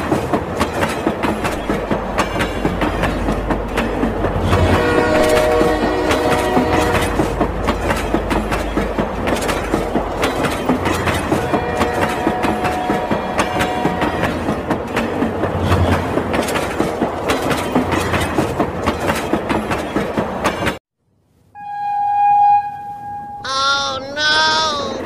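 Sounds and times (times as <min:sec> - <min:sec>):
train wheels clickety-clack: 0:00.0 - 0:20.8
train horn tone: 0:04.5 - 0:07.3, 0:11.4 - 0:14.2.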